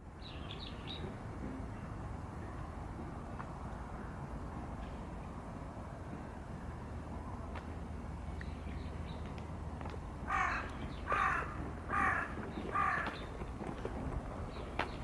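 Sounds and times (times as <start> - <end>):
crow cawing: 10.3 - 13.2.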